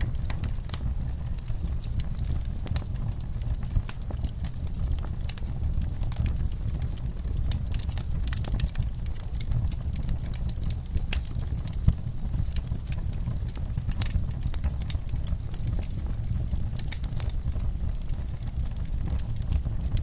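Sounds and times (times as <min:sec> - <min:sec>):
fireplace fire crackling and popping: 0:00.0 - 0:20.0.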